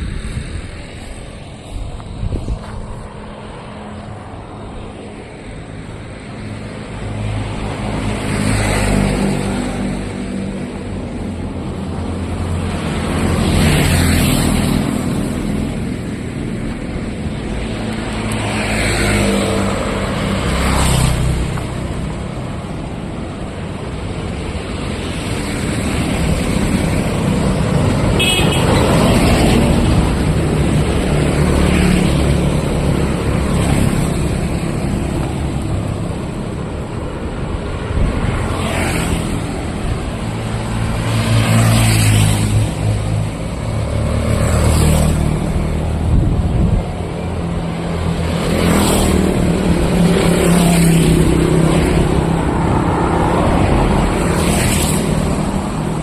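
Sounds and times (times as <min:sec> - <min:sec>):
road traffic passing: 0:00.0 - 0:56.0
car horn toot: 0:28.2 - 0:28.8.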